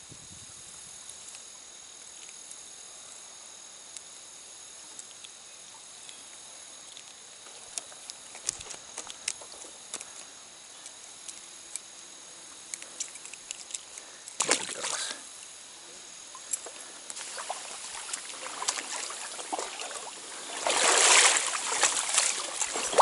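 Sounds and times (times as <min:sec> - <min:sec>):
faint outdoor hiss: 0:00.0 - 0:23.0
insects droning: 0:00.0 - 0:23.0
sharp small clicks: 0:02.1 - 0:03.2, 0:04.9 - 0:05.4, 0:06.0 - 0:12.0, 0:12.6 - 0:15.6, 0:16.3 - 0:17.3.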